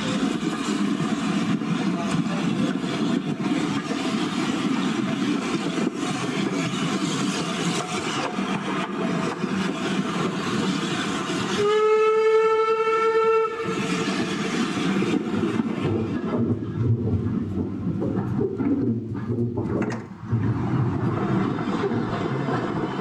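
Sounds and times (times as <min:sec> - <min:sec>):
train wheels rumbling on track: 0:00.0 - 0:23.0
locomotive horn blast: 0:11.5 - 0:13.9.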